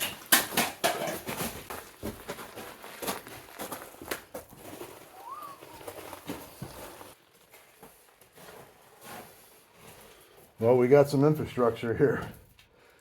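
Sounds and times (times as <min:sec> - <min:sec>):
footsteps crunching on rock: 0:01.0 - 0:09.0.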